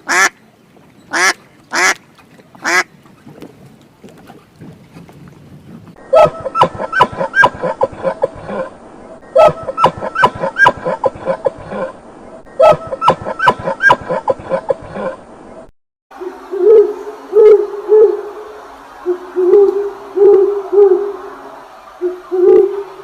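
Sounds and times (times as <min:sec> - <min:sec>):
fowl rapid repeated calls: 0:00.0 - 0:00.4, 0:01.1 - 0:02.0, 0:02.6 - 0:02.9, 0:09.4 - 0:11.9.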